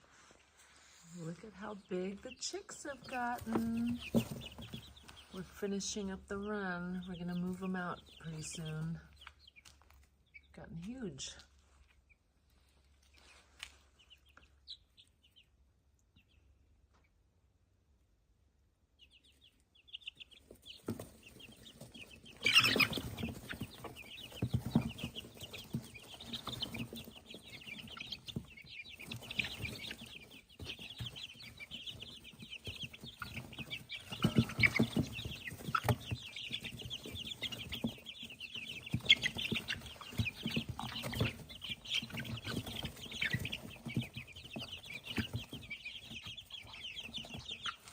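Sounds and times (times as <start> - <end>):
chicks peeping and clucking: 0.0 - 47.9
scuffling: 0.1 - 9.0.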